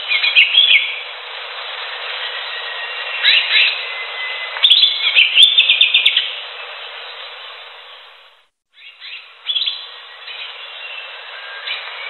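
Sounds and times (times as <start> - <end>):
steady hiss: 0.0 - 12.0
bird chirping and whistling: 0.1 - 1.0, 2.2 - 6.4, 8.8 - 12.0.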